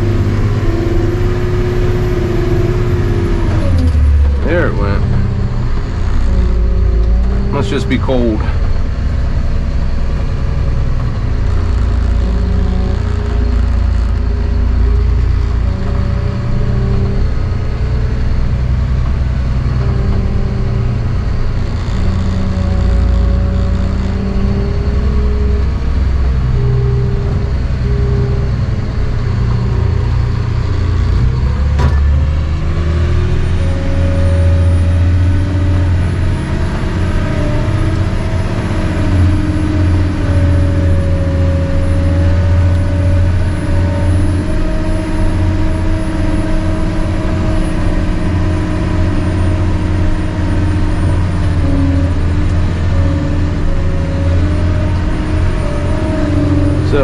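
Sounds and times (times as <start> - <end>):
diesel truck engine running: 0.0 - 57.0.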